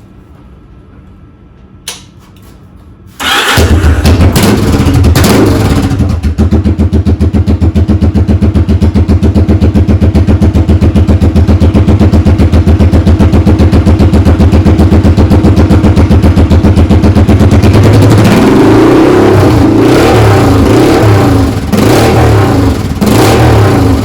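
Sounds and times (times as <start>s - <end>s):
motorcycle engine idling: 3.2s - 18.0s.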